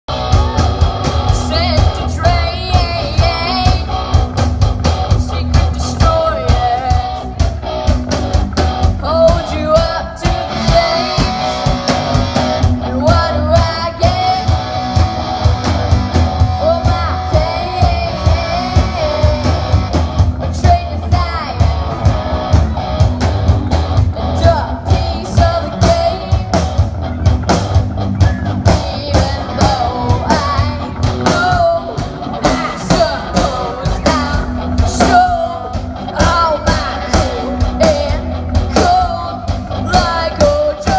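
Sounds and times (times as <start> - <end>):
person singing: 0.1 - 4.1, 5.1 - 7.4, 9.0 - 12.1, 12.8 - 14.8, 16.4 - 21.9, 24.3 - 26.8, 28.6 - 40.9
guitar: 0.1 - 40.9
steady drum beat: 0.1 - 40.9.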